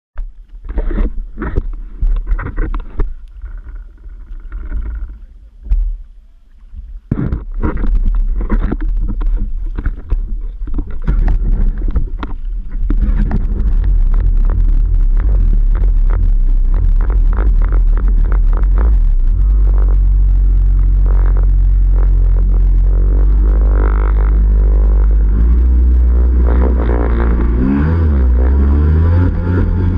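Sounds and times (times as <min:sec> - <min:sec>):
personal watercraft engine running: 0:00.6 - 0:29.9
wind buffeting microphone: 0:06.8 - 0:29.9.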